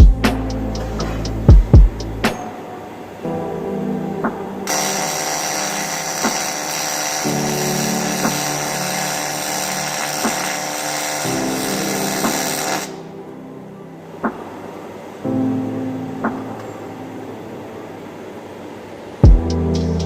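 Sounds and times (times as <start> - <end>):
background music: 0.0 - 18.4, 19.2 - 20.0
welding arc buzzing hiss: 4.6 - 13.1.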